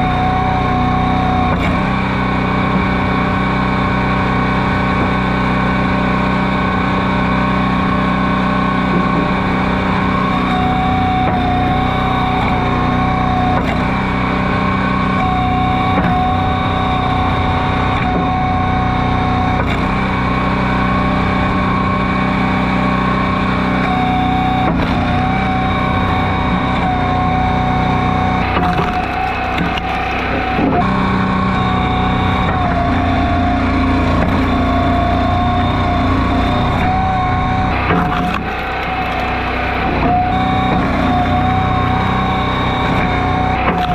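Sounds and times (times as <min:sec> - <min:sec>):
high-pitched whine: 0:00.0 - 0:43.9
log splitter engine running: 0:00.0 - 0:43.9.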